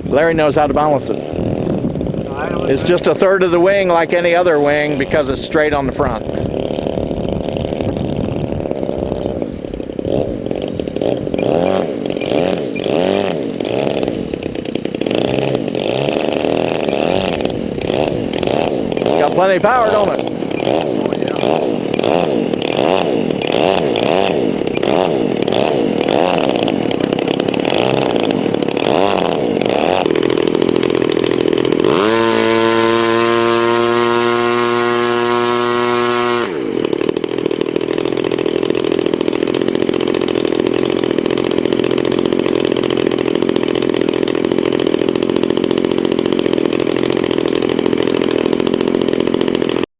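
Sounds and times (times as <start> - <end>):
model airplane motor buzzing: 0.0 - 49.9.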